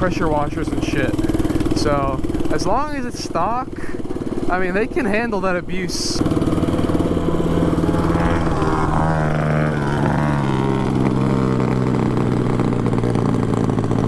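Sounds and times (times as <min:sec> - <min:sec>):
mini bike engine revving: 0:00.0 - 0:14.0.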